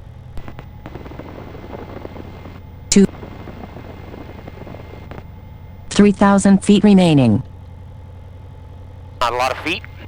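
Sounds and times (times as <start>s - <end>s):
aircraft engine hum through intercom: 1.8s - 5.1s, 9.2s - 10.0s.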